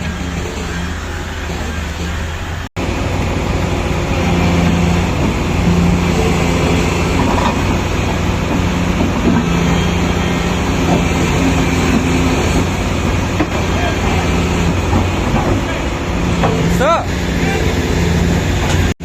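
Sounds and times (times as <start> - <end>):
heavy diesel engines droning: 0.0 - 19.0.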